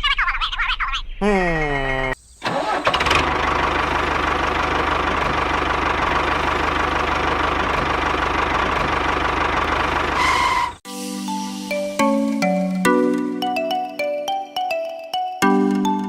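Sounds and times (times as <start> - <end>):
engine running with even putter: 2.4 - 10.7
mallet percussion music: 11.1 - 16.0.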